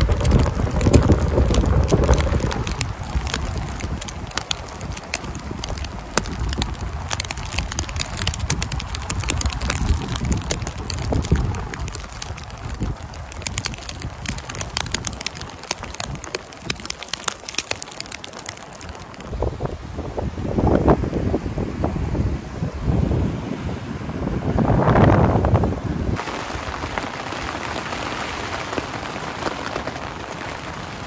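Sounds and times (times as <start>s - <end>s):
heavy rain: 0.0s - 19.3s, 26.2s - 31.0s
raindrops ticking sharply: 0.0s - 19.3s, 26.2s - 31.0s
wind rumble on microphone: 0.0s - 31.0s.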